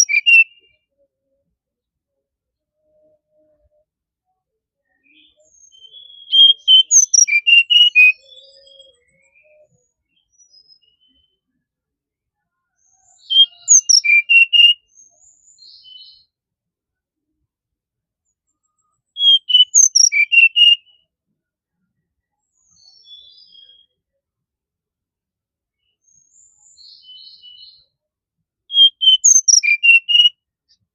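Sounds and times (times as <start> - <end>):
bird singing clear notes: 0.0 - 0.7, 4.8 - 11.4, 13.1 - 16.3, 19.2 - 20.9, 28.7 - 30.3.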